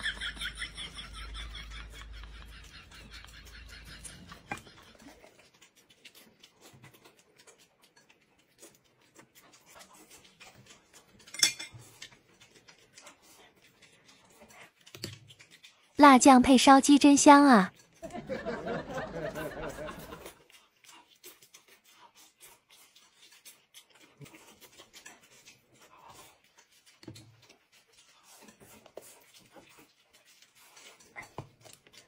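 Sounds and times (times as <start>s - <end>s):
person laughing: 0.0s - 4.9s, 18.2s - 20.3s
woman biting and chewing chicken: 1.4s - 16.0s, 19.4s - 32.0s.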